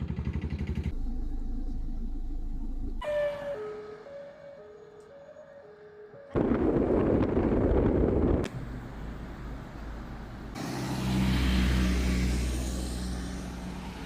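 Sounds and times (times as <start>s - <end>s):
engine hum: 0.0s - 3.0s, 6.3s - 14.0s.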